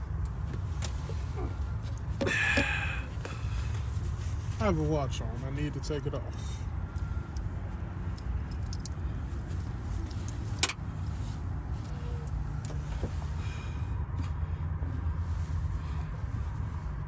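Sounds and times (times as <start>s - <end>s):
wristwatch metal clinks: 7.0s - 12.8s.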